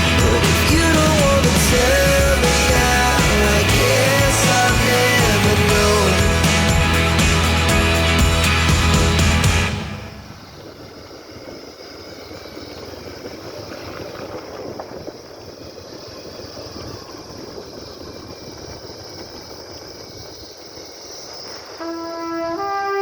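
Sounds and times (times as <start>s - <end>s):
brass music: 0.0s - 10.3s, 21.8s - 23.0s
rumbling vehicle noise: 0.0s - 19.2s.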